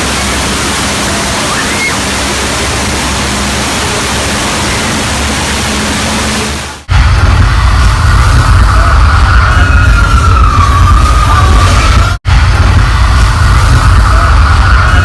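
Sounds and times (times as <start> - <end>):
rush of pouring water: 0.0 - 8.8.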